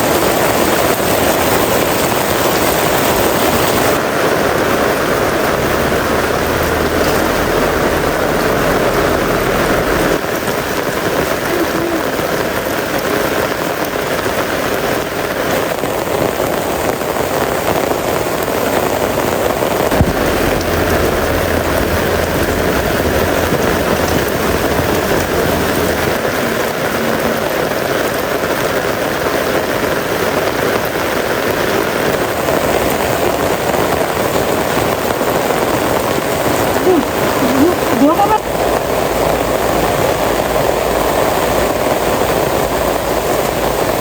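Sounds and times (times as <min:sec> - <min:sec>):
heavy rain falling: 0:00.0 - 0:44.0
low rumble: 0:19.8 - 0:28.7.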